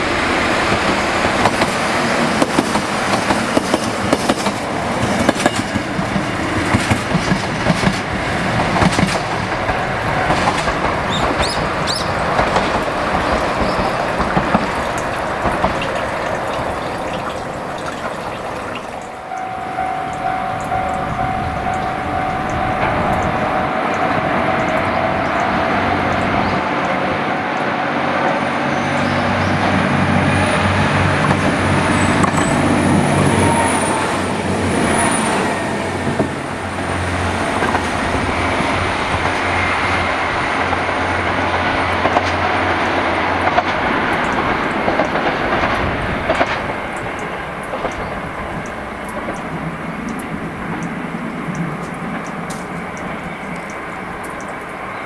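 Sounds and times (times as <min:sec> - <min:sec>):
train wheels rumbling: 0:00.0 - 0:55.0.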